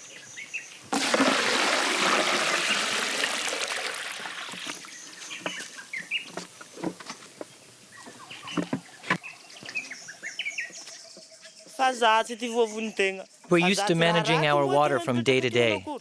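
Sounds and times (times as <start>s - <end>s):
birds chirping: 0.0s - 1.0s, 3.8s - 16.0s
water pouring: 0.9s - 5.1s.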